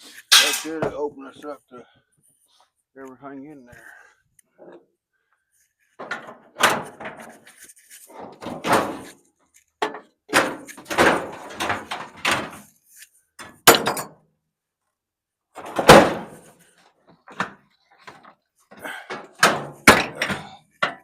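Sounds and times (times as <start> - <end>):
sheet metal bangs and rattles: 0.3 - 0.9, 6.0 - 7.3, 8.2 - 9.1, 9.8 - 12.6, 13.4 - 14.1, 15.6 - 16.5, 19.2 - 21.0.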